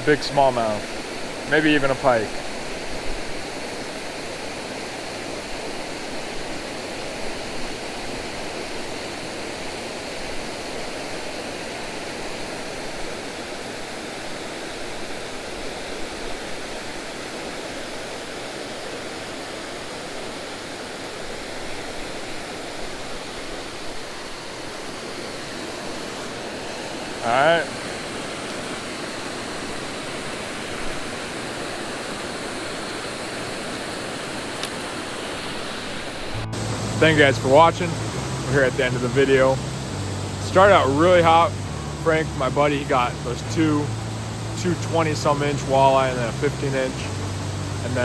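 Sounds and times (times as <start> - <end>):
waterfall rushing: 0.0 - 48.0.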